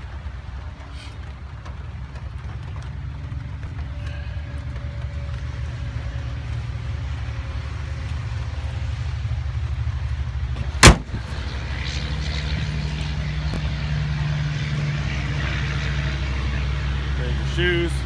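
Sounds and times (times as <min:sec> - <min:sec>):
steady low rumble: 0:01.4 - 0:18.0
truck hood slamming shut: 0:10.6 - 0:11.4.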